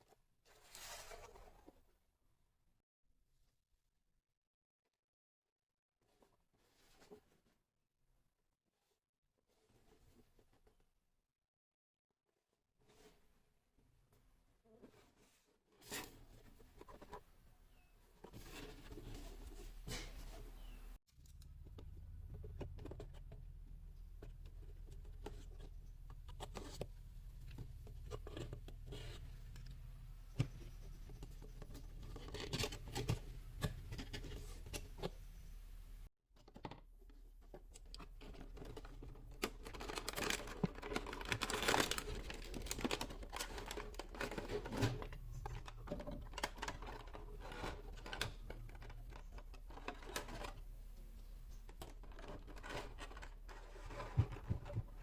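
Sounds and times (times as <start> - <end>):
packaging tearing and crinkling: 39.6 - 44.8.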